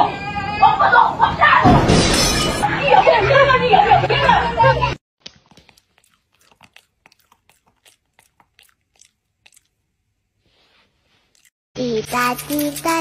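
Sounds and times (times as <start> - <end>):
faint crunchy chewing: 5.2 - 11.5.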